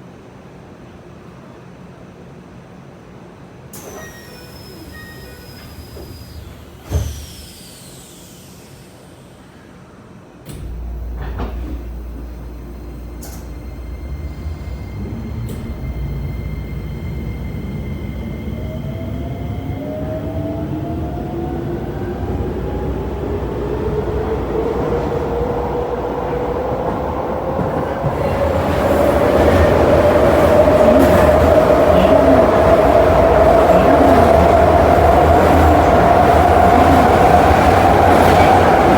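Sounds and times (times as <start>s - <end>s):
electric train accelerating: 3.7s - 9.9s, 10.5s - 38.9s
train running rumble: 10.5s - 38.9s.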